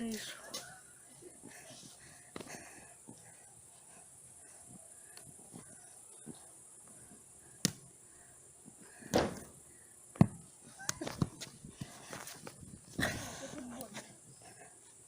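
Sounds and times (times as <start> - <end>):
dull thud: 9.1 - 9.6.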